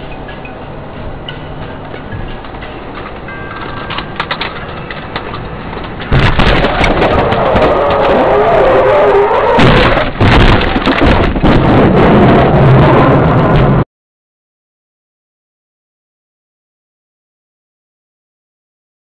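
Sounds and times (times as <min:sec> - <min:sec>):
distorted road vehicle noise: 0:00.0 - 0:13.9.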